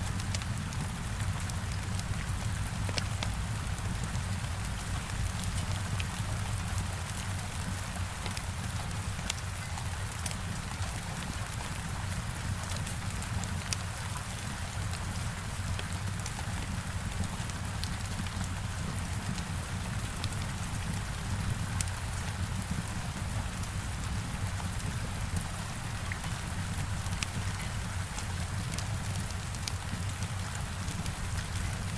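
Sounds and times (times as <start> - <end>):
heavy rain on window: 0.0 - 31.9
wood fire crackling: 9.0 - 10.6, 24.5 - 31.9.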